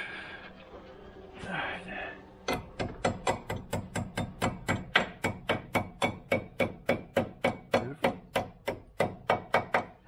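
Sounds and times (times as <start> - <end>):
hammer tapping: 2.5 - 10.0.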